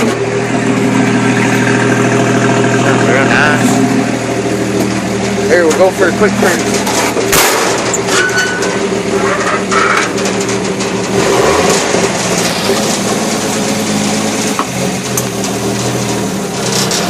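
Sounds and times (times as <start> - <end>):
truck engine running: 0.0 - 17.0
sharp clunk: 6.8 - 8.8.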